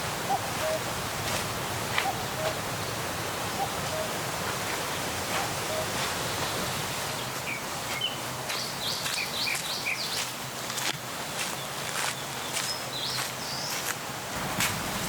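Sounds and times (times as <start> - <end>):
wind rushing through leaves: 0.0 - 15.0.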